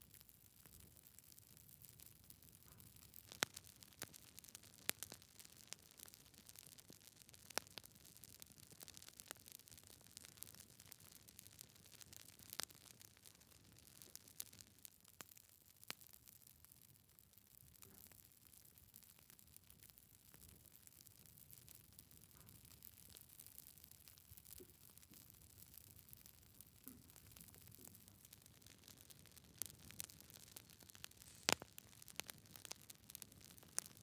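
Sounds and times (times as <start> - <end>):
logs crackling in a fire: 0.0 - 34.0
faint fire hiss: 24.1 - 34.0
sharp pops of fire: 26.7 - 34.0.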